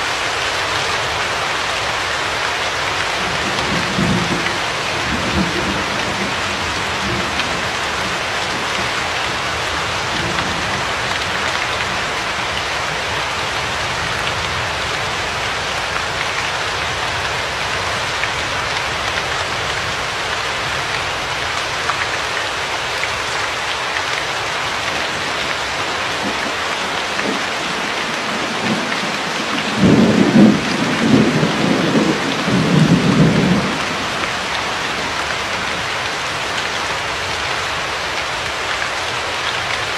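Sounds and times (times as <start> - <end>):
steady rain hiss: 0.0 - 39.9
thunder rumbling: 3.2 - 12.4, 24.9 - 35.8.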